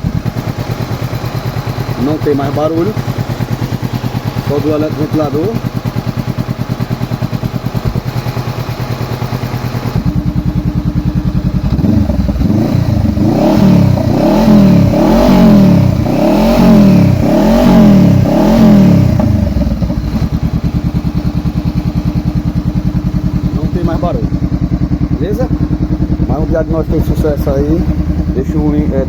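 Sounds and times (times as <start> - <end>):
motorcycle engine idling: 0.0 - 29.0
engine throttle blips: 11.4 - 29.0.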